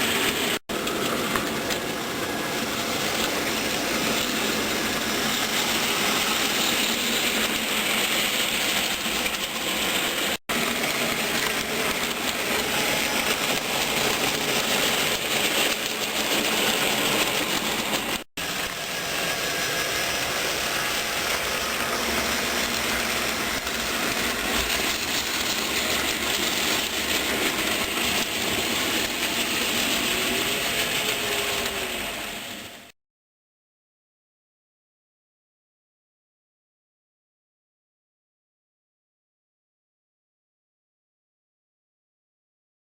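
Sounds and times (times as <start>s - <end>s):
model train motor hum: 0.0s - 32.9s
wheels on rails: 0.0s - 32.9s.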